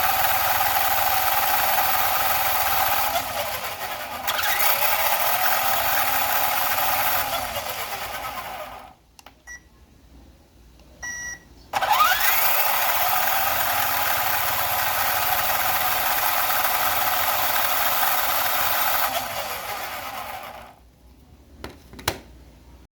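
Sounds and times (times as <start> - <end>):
electric motor whining: 0.0 - 8.9, 11.8 - 20.7
click: 9.2 - 9.4
short beep: 11.0 - 11.5.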